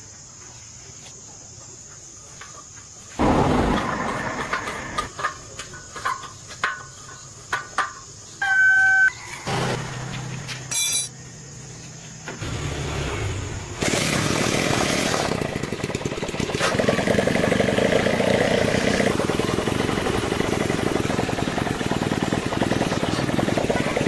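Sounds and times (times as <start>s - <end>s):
engine starting and running: 3.2s - 5.2s, 9.4s - 10.7s, 12.4s - 24.0s.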